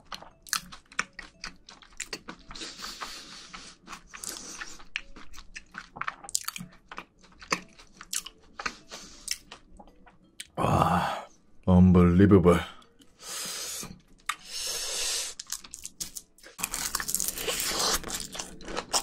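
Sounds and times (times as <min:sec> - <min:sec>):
chewing food crunchily: 0:00.0 - 0:10.6, 0:15.3 - 0:19.0.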